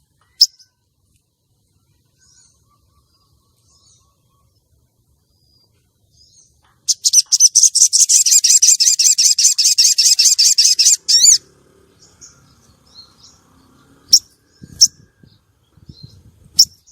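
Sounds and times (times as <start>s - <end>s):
faint bird chirps: 0.0s - 16.9s
bird calling in rapid trill: 6.8s - 13.4s, 14.0s - 15.4s.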